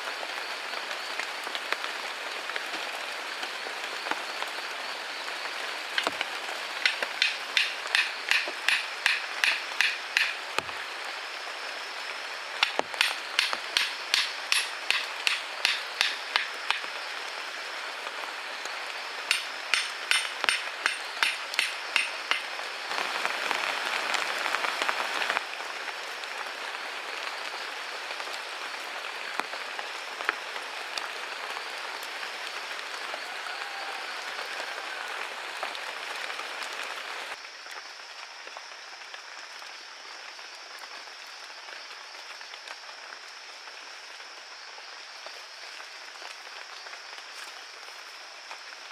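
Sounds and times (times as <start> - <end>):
steady hiss: 0.0 - 48.9
rhythmic ringing tool strikes: 12.6 - 16.9, 19.3 - 22.5.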